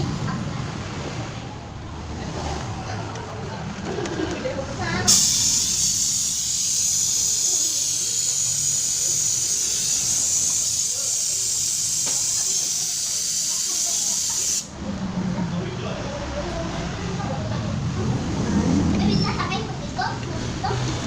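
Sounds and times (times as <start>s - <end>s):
pressurised spray hiss: 5.1s - 14.7s.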